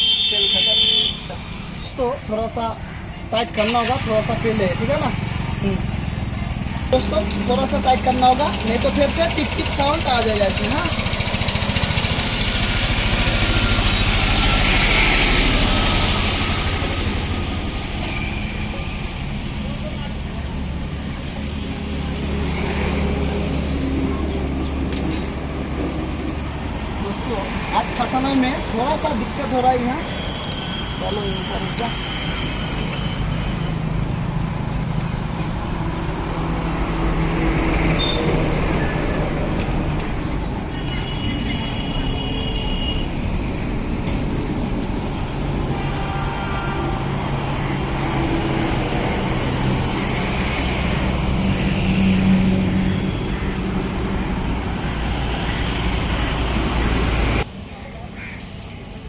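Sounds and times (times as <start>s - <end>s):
traffic engine hum: 0.0s - 59.0s
engine idling: 3.5s - 17.8s.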